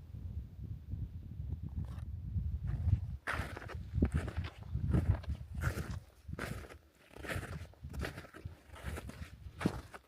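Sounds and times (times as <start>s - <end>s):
crunching footsteps: 2.7s - 10.0s.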